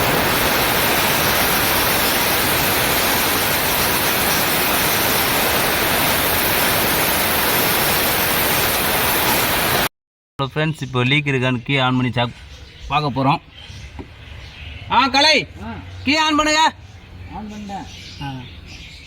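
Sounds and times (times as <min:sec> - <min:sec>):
compressed air blow gun hissing: 0:00.0 - 0:09.9.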